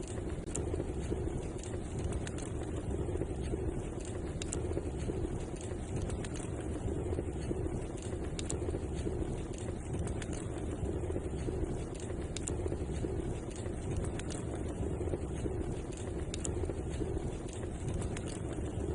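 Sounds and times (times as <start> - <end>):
fire crackling and popping: 0.0 - 18.9
fire roaring: 0.0 - 18.9.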